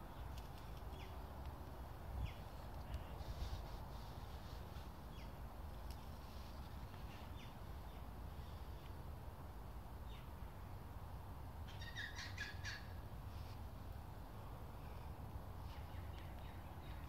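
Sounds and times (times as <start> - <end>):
bird chirps and calls: 11.7 - 12.9.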